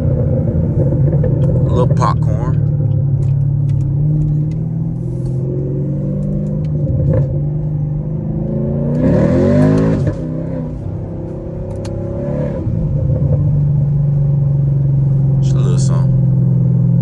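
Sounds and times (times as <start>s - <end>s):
exhaust pops: 0.0s - 7.7s
car exhaust droning and revving: 0.0s - 17.0s.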